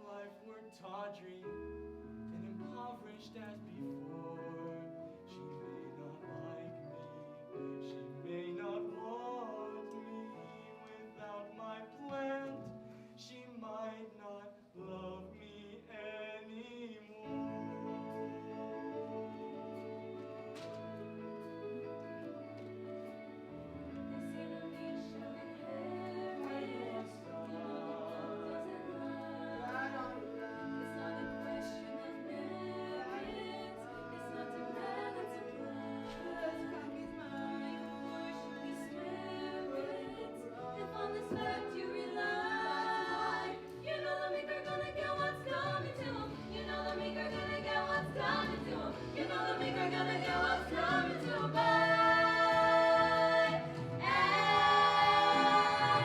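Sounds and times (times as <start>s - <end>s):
musical accompaniment: 14.8s - 56.0s
voices singing held notes: 14.8s - 56.0s.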